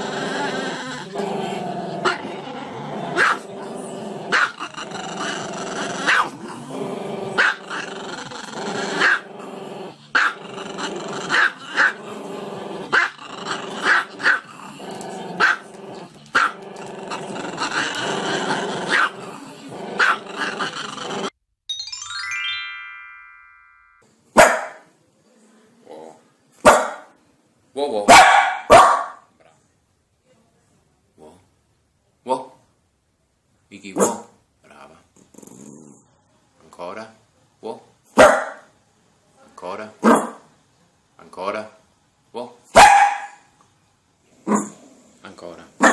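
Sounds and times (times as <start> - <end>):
electronic jingle: 21.7 - 24.0
dog yipping: 42.8 - 43.4.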